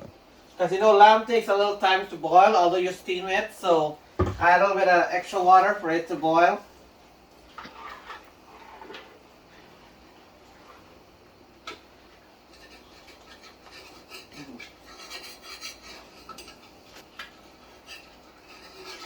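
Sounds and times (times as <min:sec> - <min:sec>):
metal spoon scraping pot: 0:12.5 - 0:16.8, 0:17.6 - 0:19.0.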